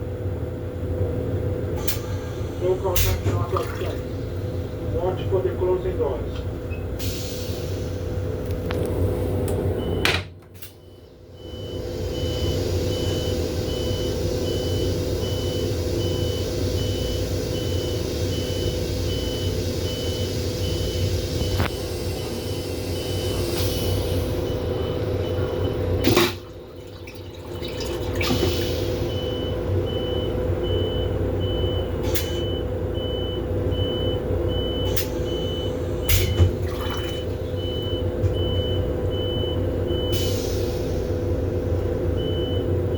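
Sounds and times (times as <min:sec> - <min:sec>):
railcar hum: 0:00.0 - 0:42.9.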